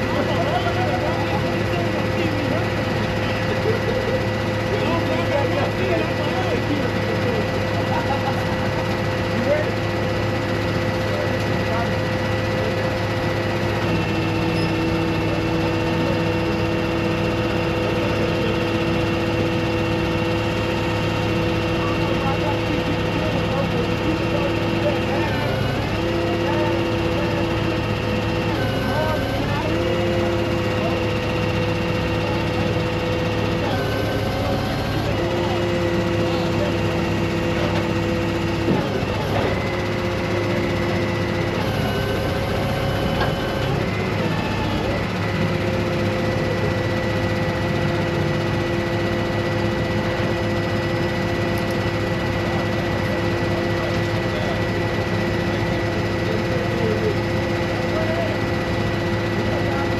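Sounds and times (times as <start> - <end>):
vehicle engine humming steadily: 0.0 - 59.9
whining tones: 25.0 - 47.7.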